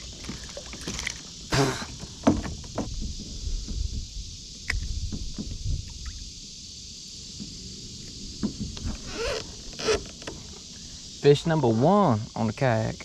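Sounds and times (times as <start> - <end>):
high drone of insects: 0.0 - 13.0
knocks of plastic kayak hull: 1.6 - 3.8.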